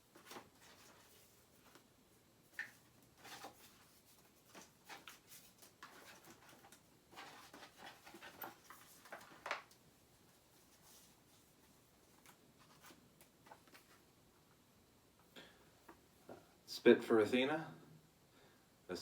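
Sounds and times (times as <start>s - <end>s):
paper rustling: 0.0s - 1.9s, 2.5s - 14.0s.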